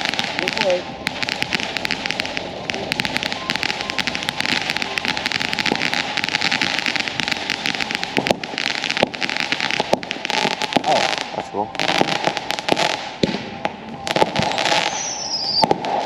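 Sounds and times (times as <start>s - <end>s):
firework hissing and crackling: 0.0s - 16.0s.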